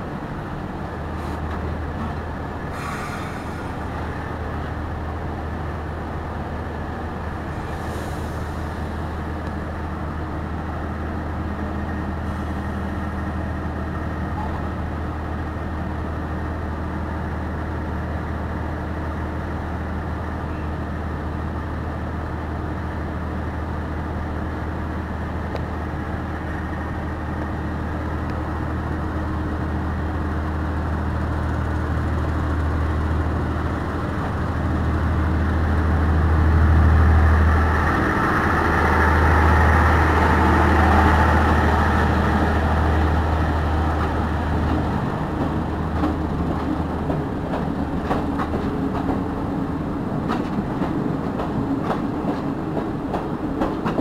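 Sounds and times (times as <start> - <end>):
train cars rumbling on rails: 0.0 - 54.0
short hisses: 2.7 - 3.9.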